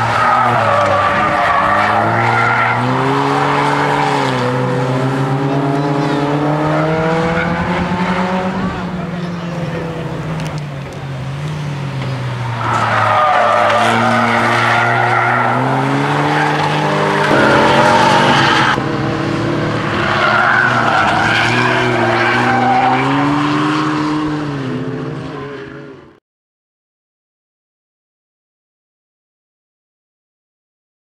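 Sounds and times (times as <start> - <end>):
car engine revving hard: 0.0 - 10.6, 11.3 - 25.5.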